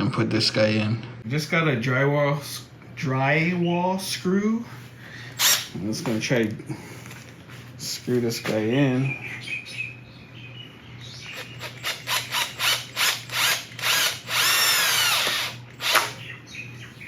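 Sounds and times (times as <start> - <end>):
power drill driving a screw: 5.4 - 5.7, 11.3 - 16.2.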